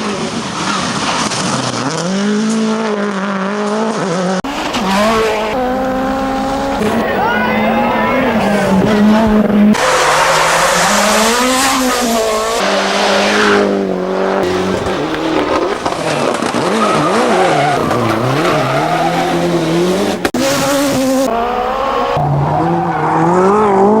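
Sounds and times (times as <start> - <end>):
rally car engine revving: 0.0 - 24.0
tyre and surface noise: 8.5 - 21.4.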